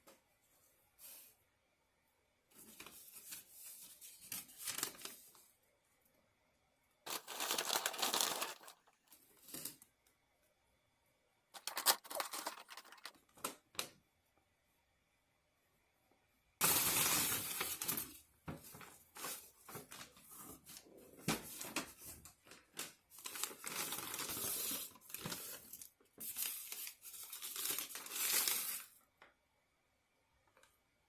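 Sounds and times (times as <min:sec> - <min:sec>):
food packaging crinkling and tearing: 0:07.1 - 0:09.8, 0:11.6 - 0:13.5, 0:22.5 - 0:28.9.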